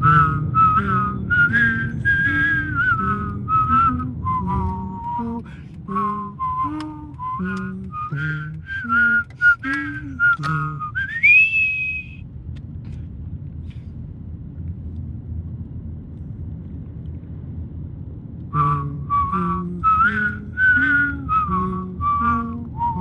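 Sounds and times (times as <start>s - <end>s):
person singing: 0.0s - 11.0s
person whistling: 0.0s - 12.2s, 18.6s - 23.0s
low rumbling noise: 0.0s - 23.0s.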